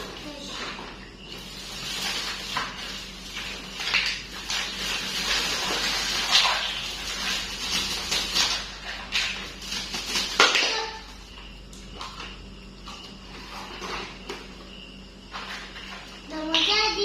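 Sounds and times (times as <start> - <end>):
plastic packaging rustling: 0.0 - 11.1.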